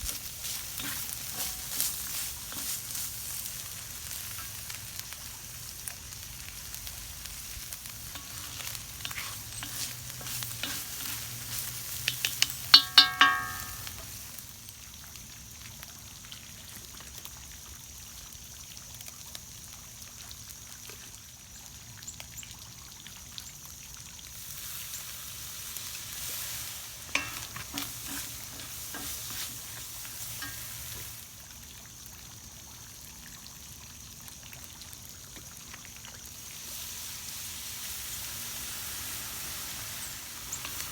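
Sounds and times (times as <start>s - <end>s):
utensil scraping a wok: 0.0s - 5.1s, 6.5s - 14.4s, 24.5s - 31.2s, 36.7s - 40.9s
food sizzling in a wok: 0.0s - 21.1s, 23.2s - 40.9s
ringing clanks against a wok: 0.4s - 3.0s, 8.0s - 14.2s, 26.4s - 31.2s, 40.4s - 40.9s.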